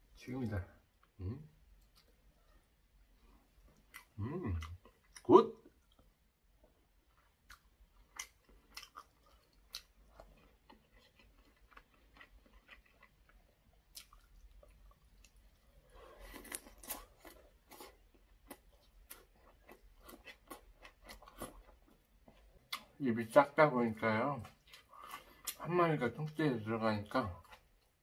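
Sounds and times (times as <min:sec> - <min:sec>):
chewing: 0:03.2 - 0:06.1, 0:07.0 - 0:23.0.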